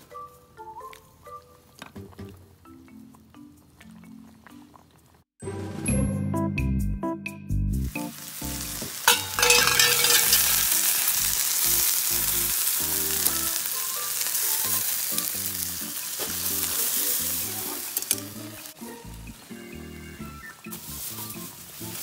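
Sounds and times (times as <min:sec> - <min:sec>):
chicken sizzling in a pan: 0:07.8 - 0:22.0.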